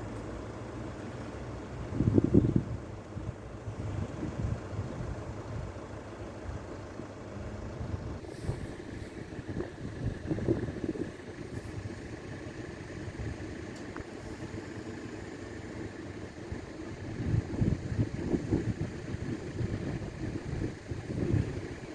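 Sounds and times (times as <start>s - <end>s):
road vehicles rumbling: 0.0s - 21.9s
faint hiss: 8.2s - 9.8s.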